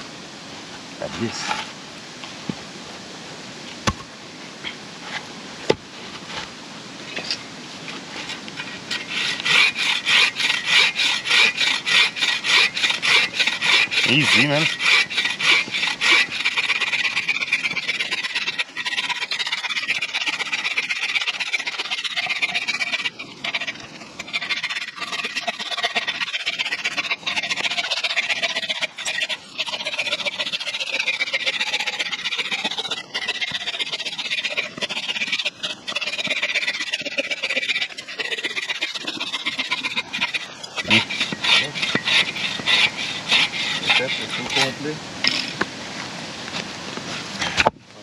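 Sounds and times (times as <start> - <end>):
hand saw cutting wood: 8.1 - 45.7.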